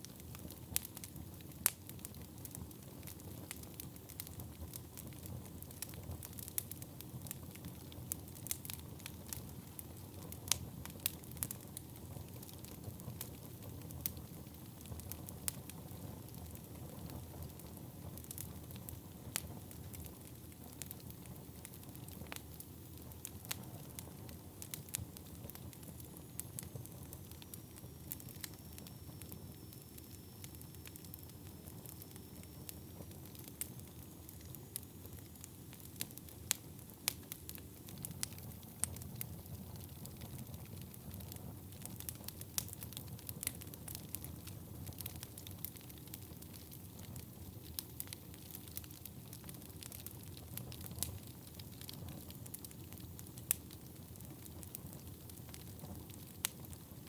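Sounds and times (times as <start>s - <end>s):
low rumble of flame: 0.0s - 57.0s
logs crackling and popping: 18.2s - 29.4s, 30.8s - 57.0s.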